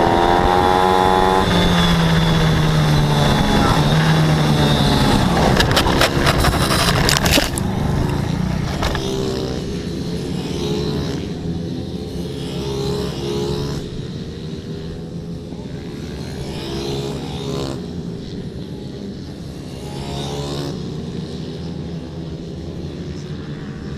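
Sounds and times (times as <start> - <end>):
pit bike engines revving: 0.0 - 23.9
loud noisy rush: 1.5 - 9.0.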